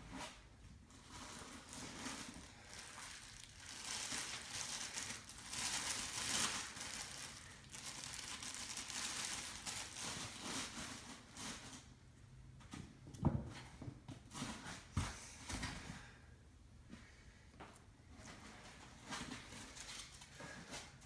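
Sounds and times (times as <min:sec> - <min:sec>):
packing material crinkling: 0:00.9 - 0:11.8.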